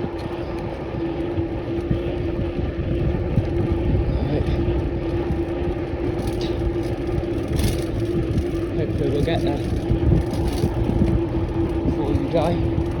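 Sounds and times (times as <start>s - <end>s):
steady mid-pitched hum: 0.0s - 13.0s
wind buffeting microphone: 0.0s - 13.0s.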